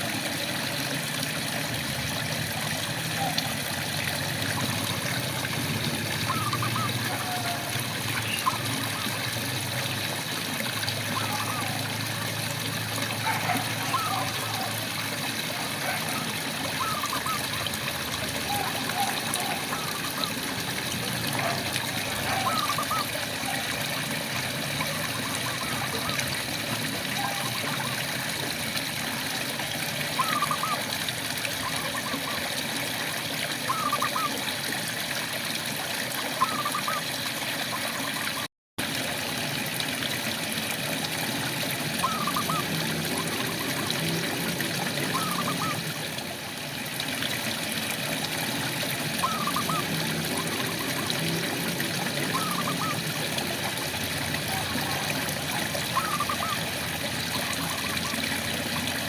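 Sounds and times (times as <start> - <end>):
steady rainfall: 0.0 - 28.0
frogs calling: 6.0 - 9.5, 11.0 - 12.3, 13.2 - 14.9, 15.5 - 20.6, 21.3 - 23.8, 24.7 - 26.3, 27.1 - 27.9, 30.1 - 32.5, 33.7 - 34.5, 36.2 - 37.1, 41.9 - 46.0, 49.1 - 53.3, 54.4 - 58.7
frogs chirping: 6.3 - 9.1, 49.2 - 50.9, 55.9 - 56.6.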